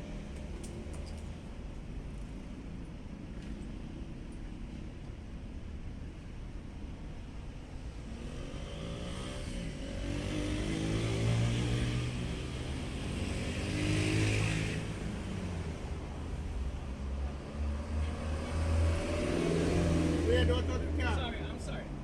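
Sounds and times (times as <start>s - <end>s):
vehicle engine accelerating: 8.1s - 16.0s, 17.0s - 20.9s.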